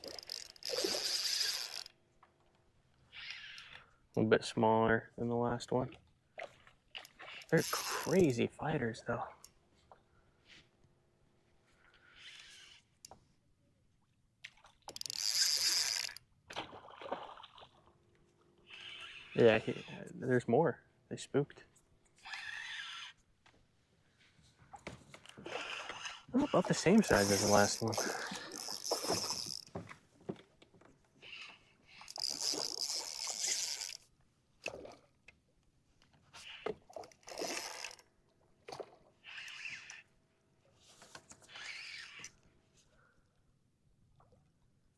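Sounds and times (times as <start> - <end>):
water splashing beside kayak: 16.5 - 18.1.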